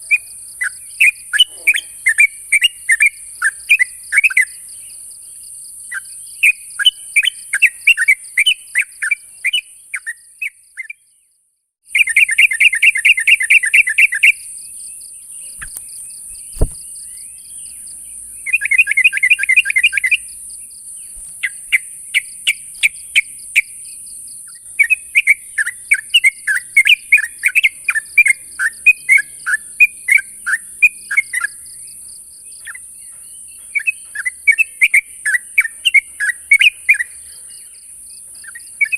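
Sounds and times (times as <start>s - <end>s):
bird giving sharp calls: 0.0s - 3.0s, 15.5s - 16.9s
bird chattering: 0.0s - 4.5s, 15.5s - 17.1s, 18.5s - 20.4s.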